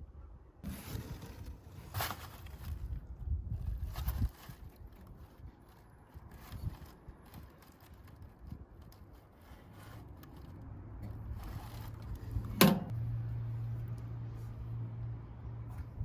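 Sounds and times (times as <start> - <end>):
handling clicks and knocks: 12.4 - 13.0.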